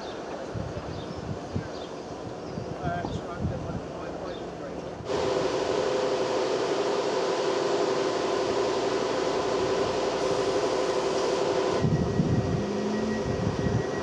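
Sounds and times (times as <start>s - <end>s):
train engine humming: 3.8s - 14.0s
deep uneven diesel engine: 4.0s - 14.0s.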